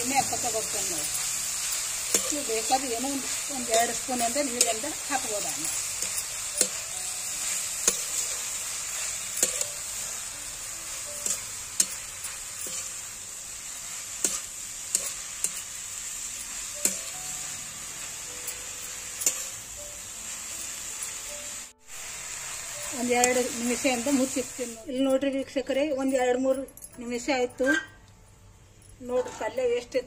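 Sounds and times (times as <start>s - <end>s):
metal spatula scraping greens: 0.0s - 19.7s, 21.9s - 25.2s
greens sizzling in a pan: 0.0s - 25.2s.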